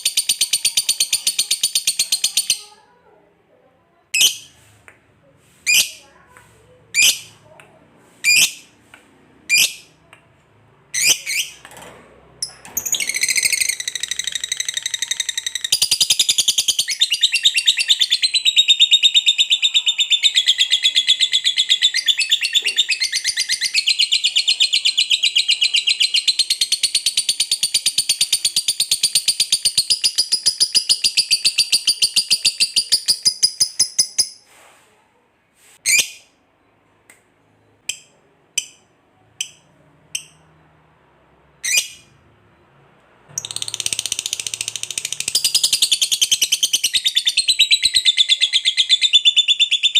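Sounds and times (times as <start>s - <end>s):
bird rapid high chatter: 0.0s - 2.8s, 8.2s - 8.8s, 9.5s - 10.0s, 11.0s - 11.6s, 12.4s - 34.4s, 43.4s - 49.9s.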